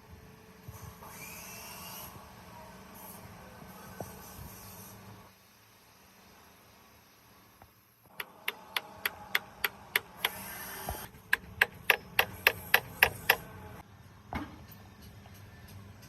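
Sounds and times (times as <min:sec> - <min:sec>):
hammer tapping metal: 0:08.1 - 0:10.4, 0:11.2 - 0:13.5.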